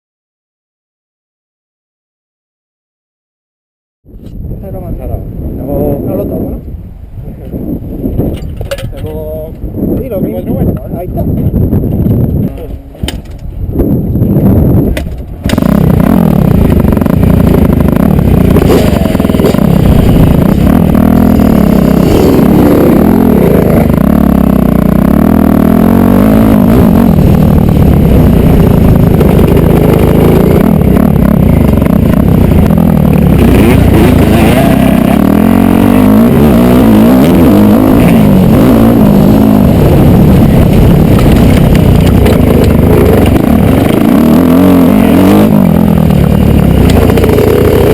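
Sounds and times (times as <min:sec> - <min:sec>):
dirt bike engine revving: 0:15.4 - 0:47.9.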